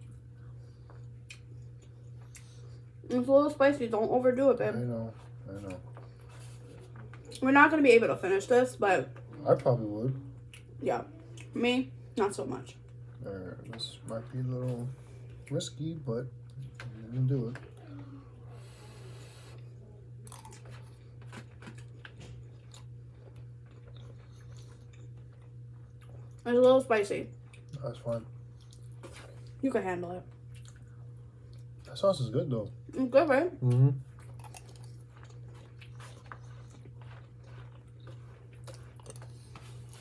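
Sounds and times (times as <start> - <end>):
person chewing food: 0.0 - 3.0, 9.1 - 11.6, 16.4 - 26.4, 27.3 - 29.6, 30.3 - 31.9, 33.6 - 40.0
steady low hum: 0.0 - 40.0.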